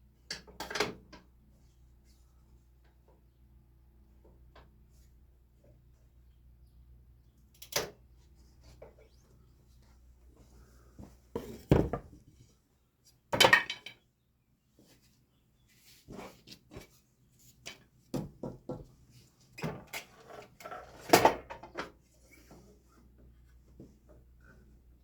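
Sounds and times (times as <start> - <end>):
sharp knocks and clatters: 11.4 - 12.2.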